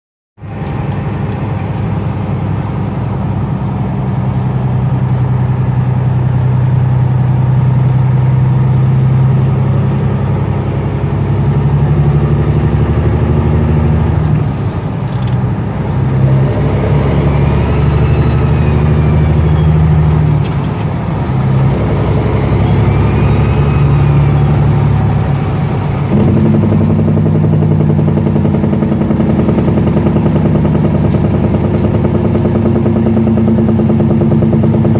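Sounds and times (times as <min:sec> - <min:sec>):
diesel truck engine running: 0:00.4 - 0:34.9
turbo whistle: 0:16.2 - 0:20.7, 0:21.4 - 0:25.4.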